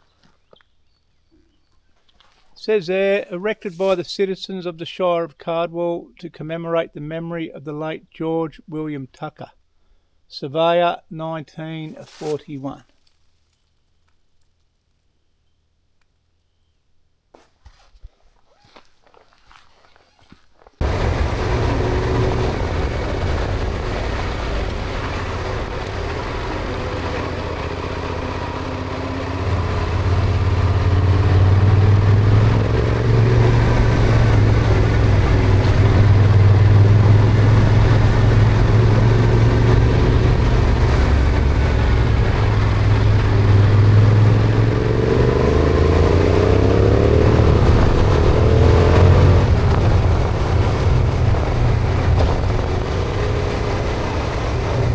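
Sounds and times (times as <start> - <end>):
motorcycle engine revving: 20.1 - 54.9.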